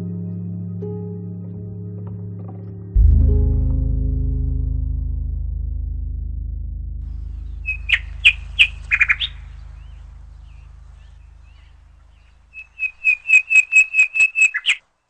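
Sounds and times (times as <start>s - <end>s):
background music: 0.0s - 5.3s
small bird chirping: 7.1s - 14.9s.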